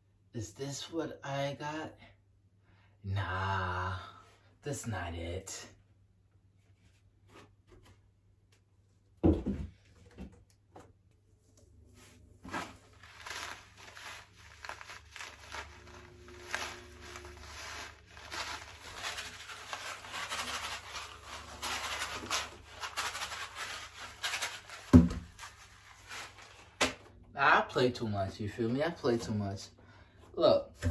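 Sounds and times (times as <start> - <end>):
packaging rustling and crinkling: 12.0 - 27.1.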